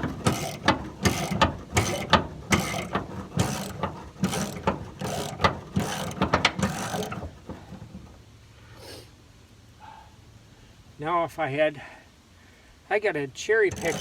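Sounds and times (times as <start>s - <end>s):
hand ratchet clicking: 0.0s - 7.7s, 13.7s - 14.0s.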